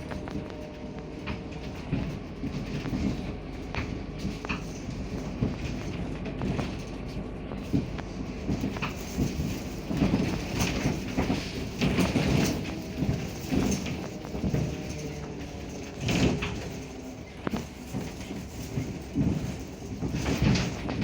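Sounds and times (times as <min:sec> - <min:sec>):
body knocks and rattles: 0:00.0 - 0:21.0
bus engine and road rumble: 0:00.0 - 0:21.0.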